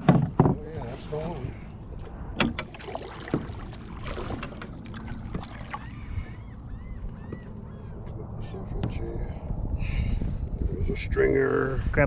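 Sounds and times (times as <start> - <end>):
wind: 0.0 - 12.0
light water noise: 0.6 - 8.2.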